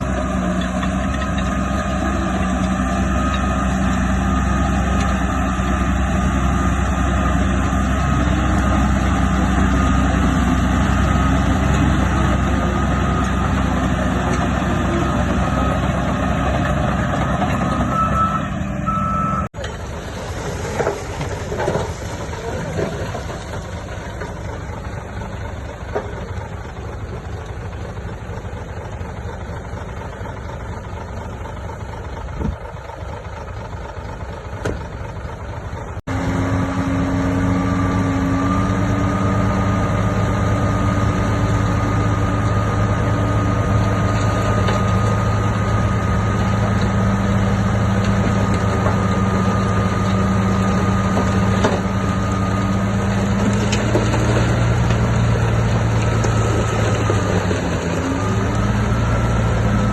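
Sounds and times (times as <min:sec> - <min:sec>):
heavy diesel machinery running: 0:00.0 - 0:59.9
reversing alarm beeping: 0:17.8 - 0:19.5.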